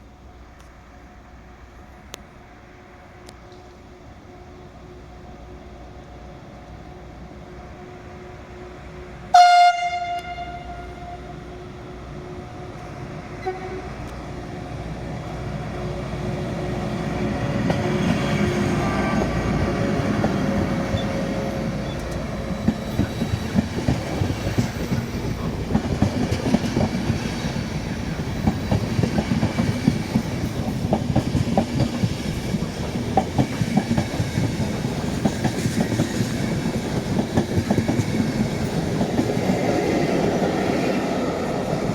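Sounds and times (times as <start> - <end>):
train rumble: 0.0 - 41.9
train horn blast: 7.8 - 11.6, 12.8 - 14.2.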